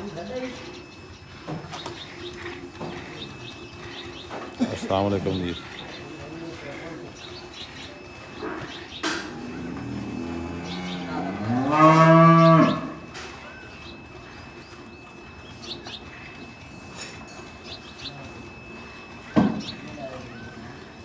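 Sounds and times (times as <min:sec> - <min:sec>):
cow mooing: 0:09.3 - 0:13.1.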